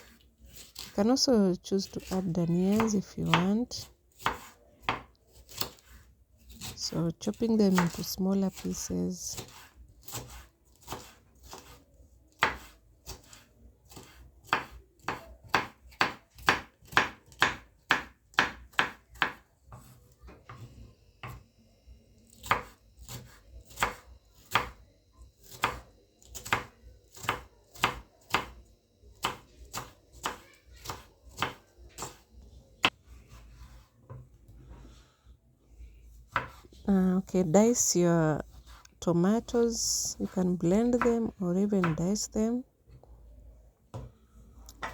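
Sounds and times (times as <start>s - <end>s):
knife chopping on cutting board: 2.0s - 6.8s, 7.7s - 8.0s, 9.3s - 21.4s, 22.4s - 24.8s, 25.4s - 28.6s, 29.2s - 32.2s, 36.3s - 36.7s, 40.8s - 42.0s.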